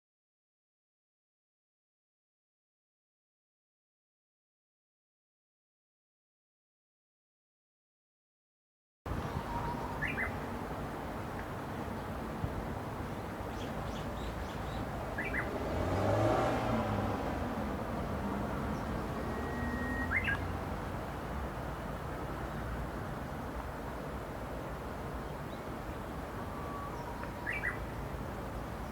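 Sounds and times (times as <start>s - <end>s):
warbler singing: 9.1s - 10.5s, 13.5s - 15.6s, 18.6s - 20.6s, 25.2s - 28.9s
faint bird chirps: 9.3s - 10.4s, 19.2s - 20.5s, 26.4s - 27.9s
vehicle passing: 14.9s - 21.5s.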